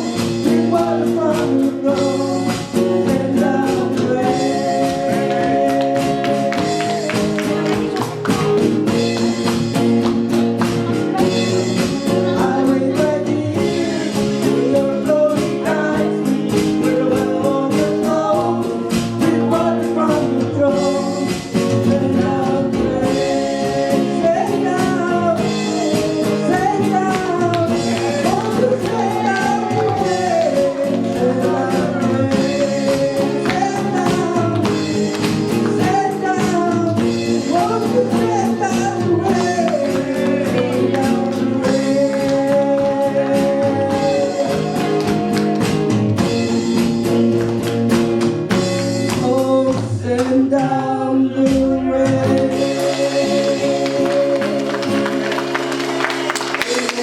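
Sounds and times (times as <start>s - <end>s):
person singing gospel song: 0.0s - 10.2s, 10.8s - 47.3s, 48.5s - 57.0s
guitar accompaniment: 0.0s - 57.0s.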